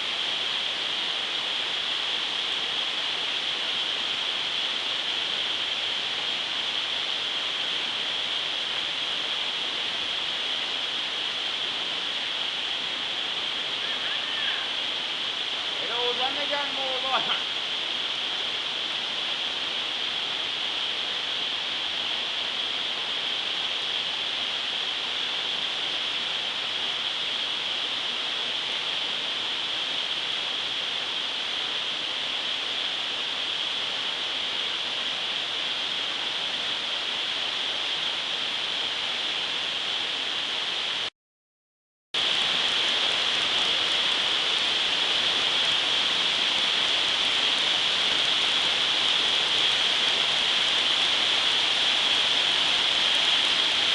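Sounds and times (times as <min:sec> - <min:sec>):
waterfall rushing: 0:00.0 - 0:41.1, 0:42.2 - 0:53.9.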